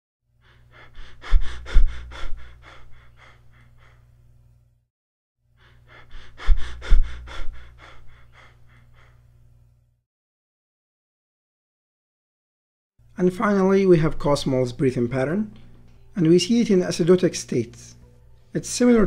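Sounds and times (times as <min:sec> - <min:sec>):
quick breathing: 0:00.4 - 0:04.2, 0:05.6 - 0:09.3.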